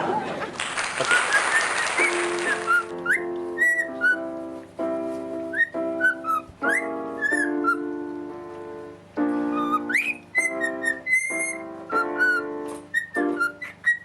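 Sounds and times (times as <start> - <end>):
parrot whistling sliding notes: 1.1 - 4.4, 5.4 - 8.0, 9.3 - 14.0
music with held chords: 2.1 - 13.9.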